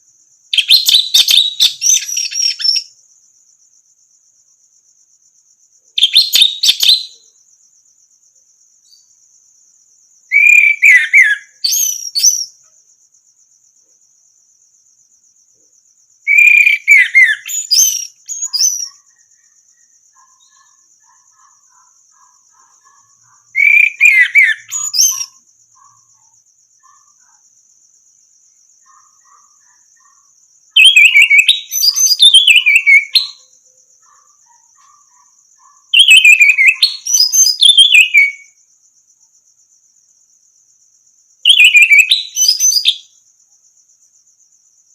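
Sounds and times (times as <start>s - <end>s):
thrush singing whistled notes: 0.0s - 3.0s, 6.0s - 7.3s, 10.3s - 12.6s, 16.2s - 20.9s, 22.8s - 25.5s, 29.2s - 33.5s, 36.0s - 38.6s, 41.5s - 43.1s
high pulsing insect trill: 0.0s - 44.9s.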